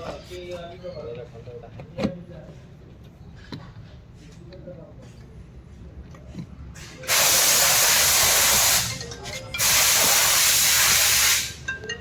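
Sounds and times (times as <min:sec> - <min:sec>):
compressed air blow gun hissing: 0:07.1 - 0:09.0, 0:09.6 - 0:11.6.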